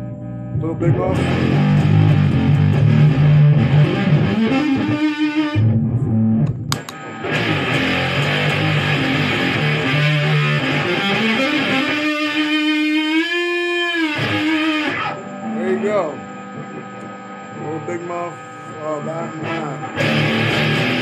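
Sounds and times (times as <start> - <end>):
distorted electric guitar: 0.0 - 21.0
click: 6.4 - 7.0.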